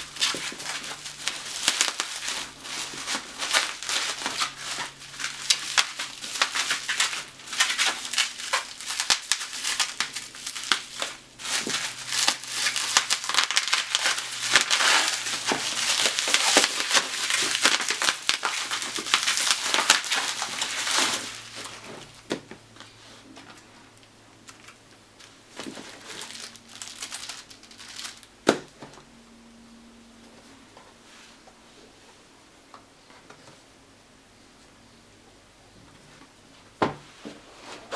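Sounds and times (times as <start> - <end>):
plastic packaging crinkling: 0.0 - 22.6, 24.4 - 28.9.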